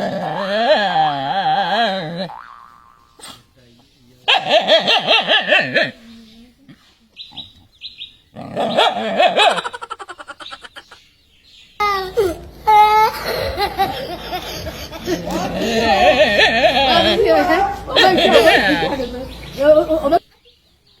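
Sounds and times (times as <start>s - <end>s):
loud laughter: 9.0s - 11.0s, 11.9s - 19.1s.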